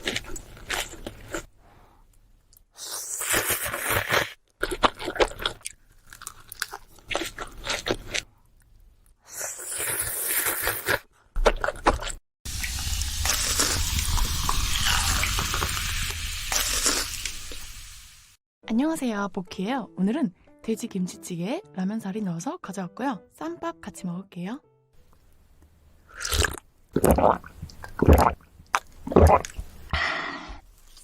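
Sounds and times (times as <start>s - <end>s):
crunching and chewing: 0.0s - 1.5s, 3.1s - 8.4s, 16.5s - 17.3s.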